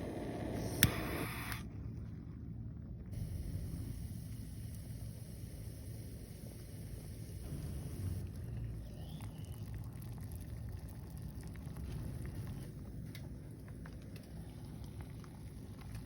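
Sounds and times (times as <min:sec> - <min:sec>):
pot simmering: 0:03.2 - 0:16.0.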